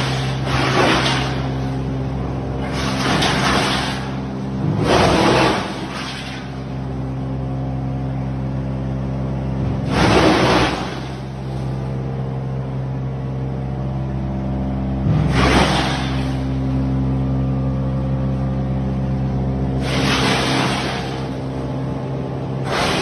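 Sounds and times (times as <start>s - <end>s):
wood chipper engine running: 0.0s - 23.0s.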